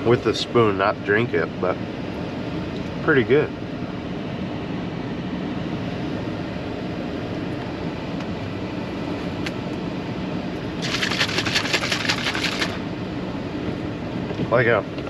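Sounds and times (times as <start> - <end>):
cabin fan hum: 0.0 - 15.0
rapid crackling: 10.8 - 12.8.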